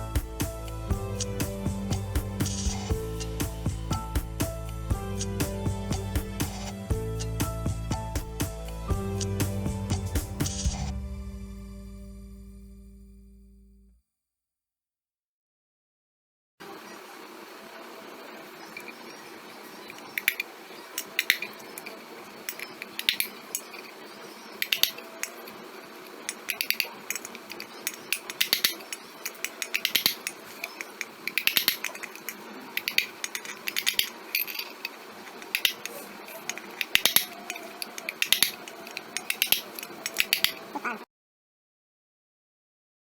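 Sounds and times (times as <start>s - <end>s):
metal taps and clinks: 21.0s - 21.9s, 22.5s - 23.9s, 24.6s - 25.4s, 26.3s - 40.6s.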